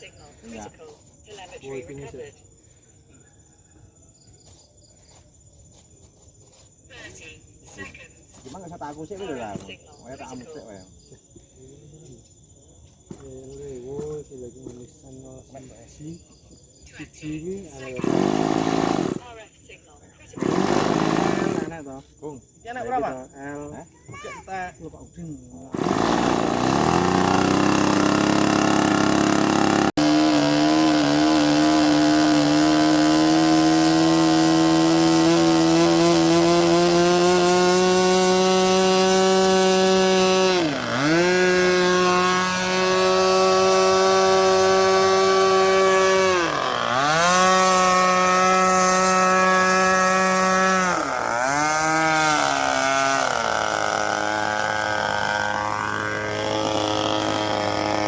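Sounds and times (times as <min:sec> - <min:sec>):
model airplane engine buzzing: 0:17.9 - 0:19.2, 0:20.4 - 0:21.8, 0:25.8 - 0:58.0.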